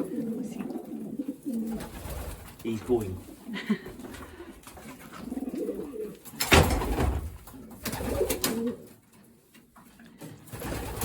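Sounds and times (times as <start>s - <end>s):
pigeons cooing: 0.0s - 2.6s, 3.2s - 9.0s.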